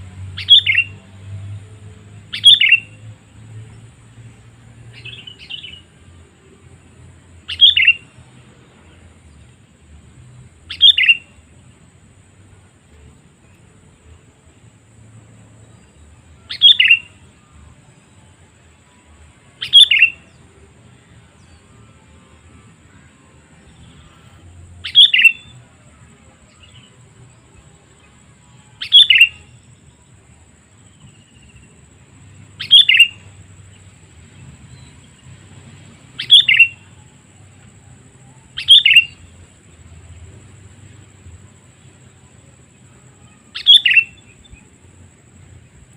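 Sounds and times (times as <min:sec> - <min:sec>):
faint high whine: 0:00.0 - 0:45.9
bird calling: 0:00.4 - 0:01.0, 0:02.3 - 0:03.0, 0:07.5 - 0:08.1, 0:10.7 - 0:11.4, 0:16.4 - 0:17.2, 0:19.6 - 0:20.2, 0:23.8 - 0:25.6, 0:28.8 - 0:29.6, 0:32.6 - 0:33.4, 0:36.1 - 0:37.0, 0:38.5 - 0:39.3, 0:43.3 - 0:44.7.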